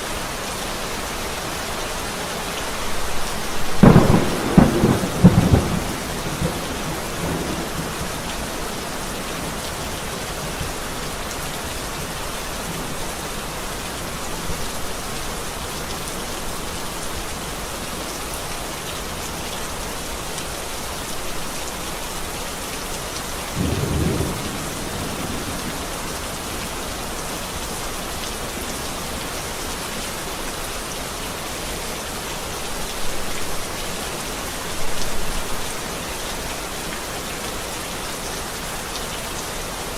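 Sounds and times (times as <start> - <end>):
heavy rain falling: 0.0 - 39.9
low thunder rumble: 3.6 - 8.3, 23.6 - 26.3.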